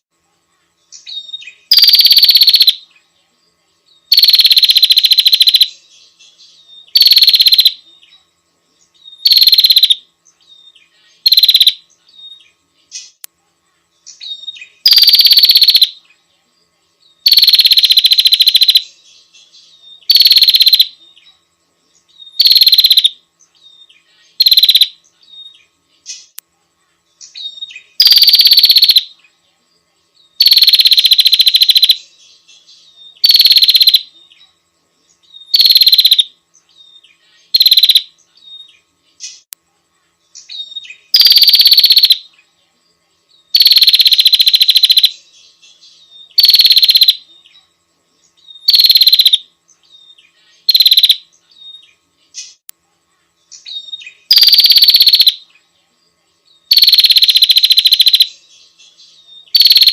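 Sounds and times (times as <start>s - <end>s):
bird buzzy rattling calls: 1.5s - 2.8s, 4.1s - 5.8s, 6.9s - 7.8s, 9.2s - 10.0s, 11.2s - 11.8s, 14.1s - 16.0s, 17.2s - 19.0s, 20.0s - 21.0s, 22.3s - 23.2s, 24.3s - 25.0s, 27.2s - 29.2s, 30.4s - 32.1s, 33.2s - 34.1s, 35.4s - 36.3s, 37.4s - 39.5s, 40.4s - 42.3s, 43.5s - 45.2s, 46.3s - 47.2s, 48.5s - 49.4s, 50.6s - 51.7s, 53.6s - 55.4s, 56.7s - 58.4s, 59.5s - 59.9s.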